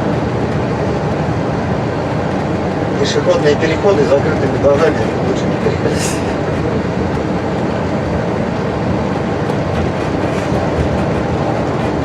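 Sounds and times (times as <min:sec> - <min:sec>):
bus engine and tyres running: 0:00.0 - 0:12.0.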